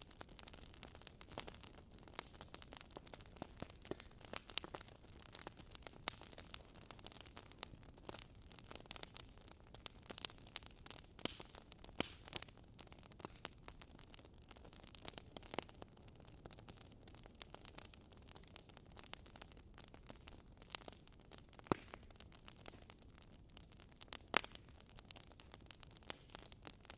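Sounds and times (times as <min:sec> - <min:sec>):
wood fire crackling: 0:00.0 - 0:26.9.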